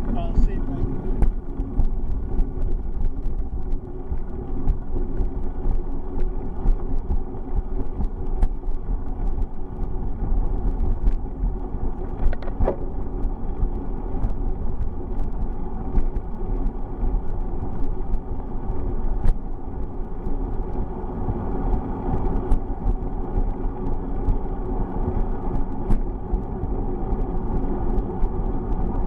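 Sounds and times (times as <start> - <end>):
wind and road rumble: 0.0 - 29.0
bicycle rattling clicks: 11.9 - 16.7.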